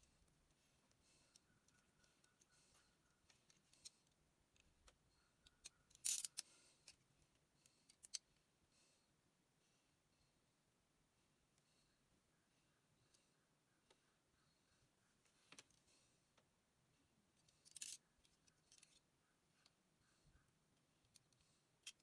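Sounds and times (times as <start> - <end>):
sharp clicks of small metal parts: 5.5 - 7.0, 7.6 - 8.2, 17.5 - 19.0, 21.0 - 22.0.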